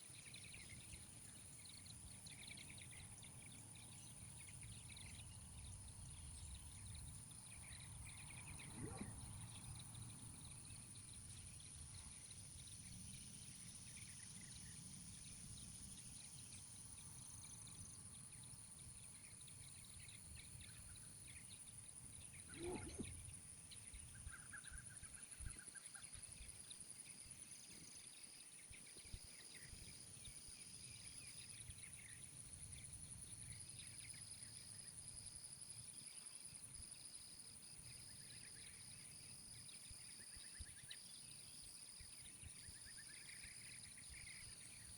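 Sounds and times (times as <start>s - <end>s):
short animal call: 22.5s - 23.1s.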